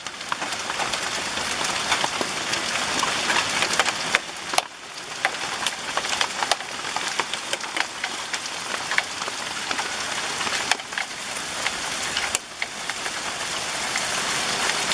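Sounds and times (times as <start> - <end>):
hail and rain hissing: 0.0 - 14.9
hailstones clicking: 0.0 - 14.9.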